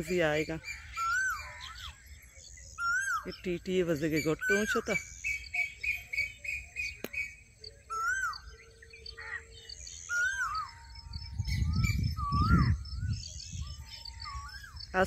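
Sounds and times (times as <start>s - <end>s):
birds singing and calling: 0.0s - 15.0s.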